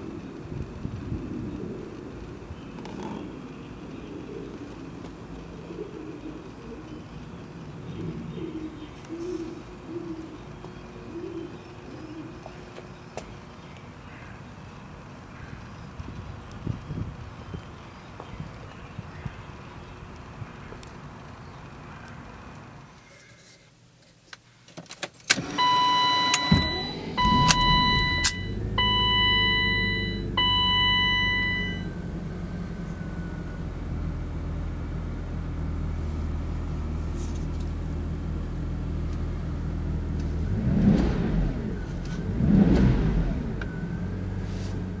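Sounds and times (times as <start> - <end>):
car engine starting and idling: 0.0 - 23.0, 25.3 - 45.0
engine revving: 25.4 - 45.0
dashboard chime: 25.6 - 31.9.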